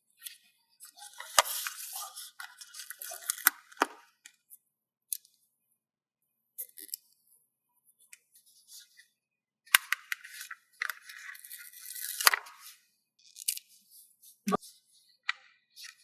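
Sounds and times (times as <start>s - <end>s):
paper and sticker sheet rustling: 1.0s - 3.5s.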